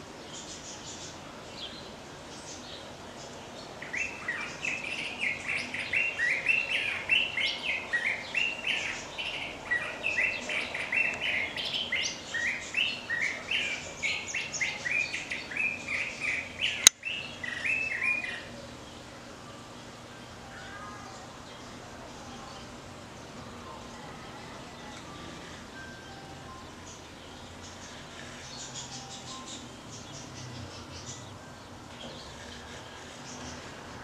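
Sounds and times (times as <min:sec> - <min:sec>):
bird singing varied phrases: 0:03.8 - 0:22.8.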